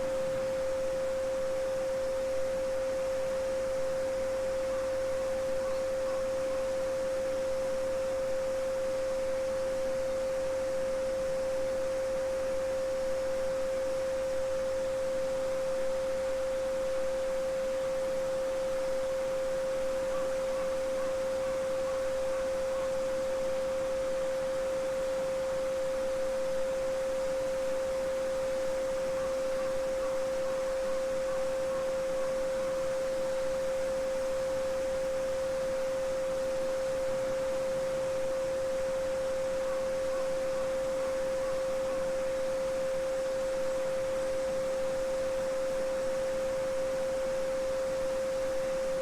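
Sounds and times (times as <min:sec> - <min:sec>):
pure sine tone: 0:00.0 - 0:49.0.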